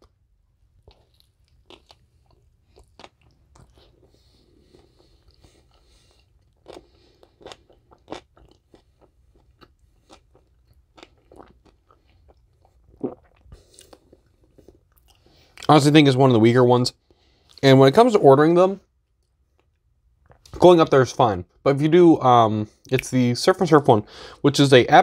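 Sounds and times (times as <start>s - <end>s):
quiet chewing with crunches: 0.0s - 15.7s, 19.0s - 20.5s.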